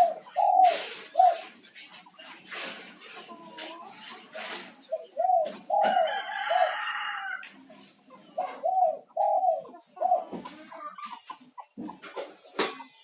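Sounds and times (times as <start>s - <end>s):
dove cooing: 0.0s - 1.6s, 2.4s - 7.4s, 8.2s - 11.3s.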